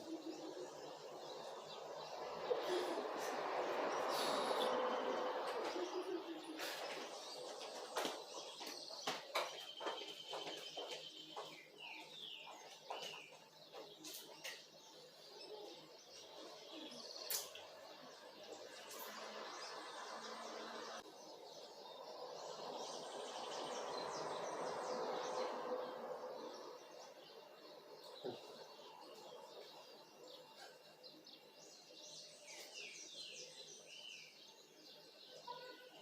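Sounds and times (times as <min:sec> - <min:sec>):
steady outdoor rush: 0:00.0 - 0:17.0
small birds chirping: 0:00.0 - 0:36.0.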